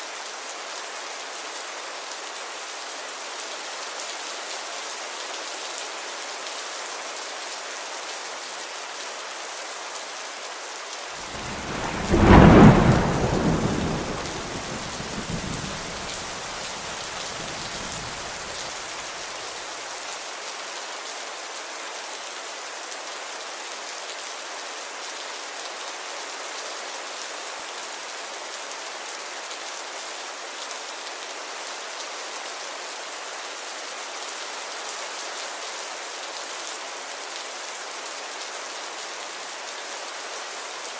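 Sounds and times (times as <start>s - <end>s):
steady rain falling: 0.0s - 40.9s
thunder clap and rumble: 11.4s - 18.6s.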